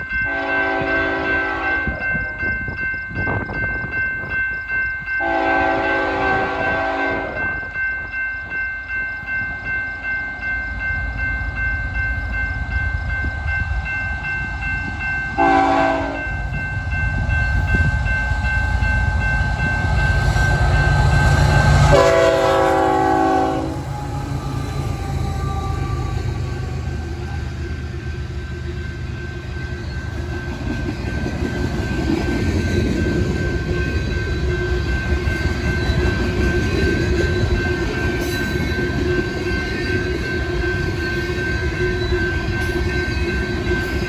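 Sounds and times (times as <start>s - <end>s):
thin steady ringing tone: 0.0s - 21.8s, 23.2s - 44.0s
train rumbling: 0.0s - 44.0s
locomotive air horn blasts: 0.3s - 2.0s, 5.2s - 7.4s, 15.4s - 16.2s, 21.8s - 26.2s.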